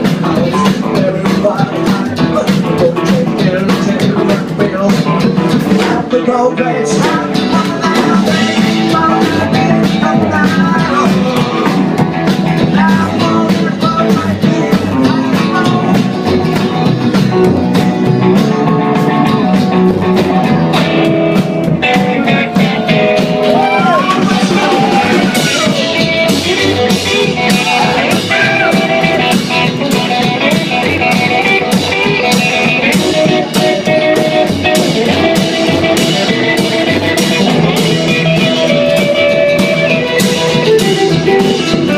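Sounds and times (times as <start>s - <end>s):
electric guitar bending notes: 0.0s - 41.9s
steady drum beat: 0.0s - 41.9s.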